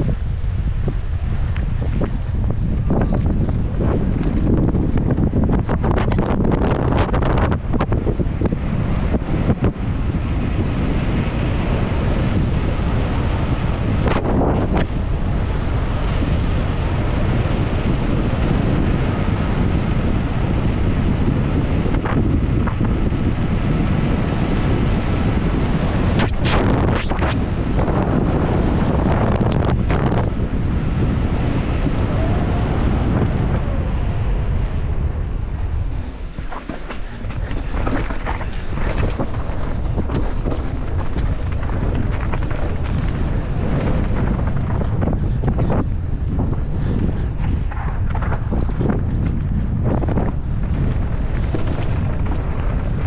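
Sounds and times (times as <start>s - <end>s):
wind rushing over microphone: 0.0s - 53.0s
bike clattering knocks and rattles: 36.3s - 45.8s.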